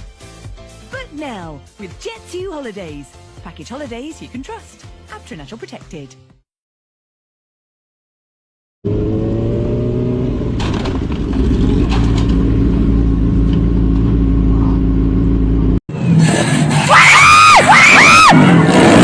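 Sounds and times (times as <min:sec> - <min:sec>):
motor vehicle engine rumbling: 0:08.9 - 0:16.8
high rising-and-falling cries: 0:16.8 - 0:18.7.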